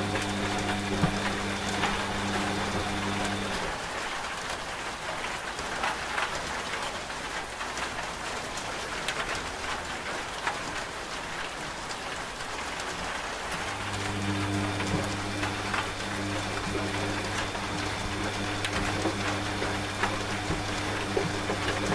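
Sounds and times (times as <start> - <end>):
washing machine motor hum: 0.0 - 3.8, 13.5 - 21.9
rain falling on a surface: 0.0 - 21.9.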